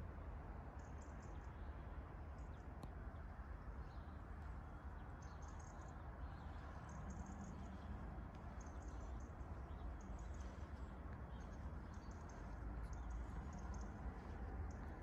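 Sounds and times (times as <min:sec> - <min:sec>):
small birds chirping: 0:04.9 - 0:15.0
steady low rumble: 0:06.3 - 0:15.0.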